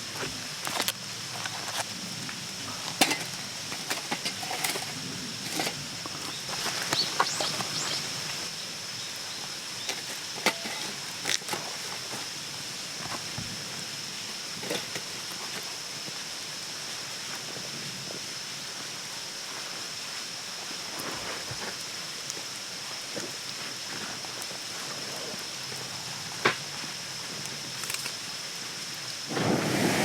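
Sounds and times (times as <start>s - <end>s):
rustles: 0.0s - 8.5s.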